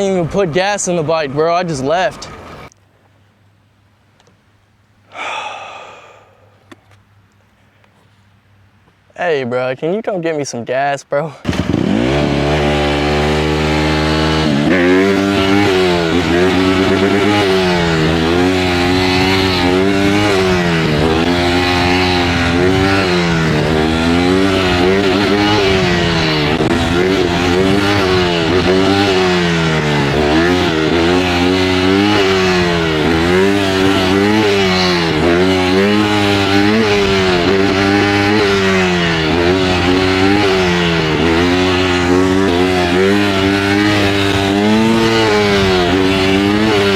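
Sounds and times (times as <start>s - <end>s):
dirt bike engine revving: 11.4s - 46.9s.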